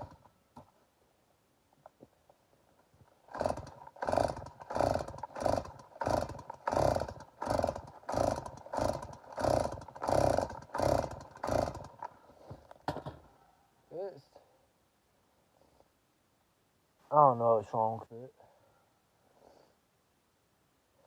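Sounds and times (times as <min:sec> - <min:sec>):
chainsaw starter cord pulls: 0:00.0 - 0:00.3, 0:03.1 - 0:13.2.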